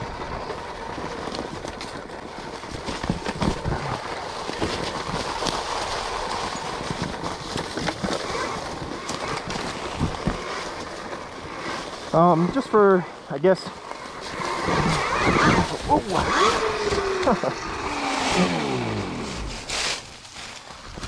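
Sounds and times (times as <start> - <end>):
tyres rushing on dirt: 0.0 - 21.0
bike suspension knocks and clatters: 0.1 - 11.8.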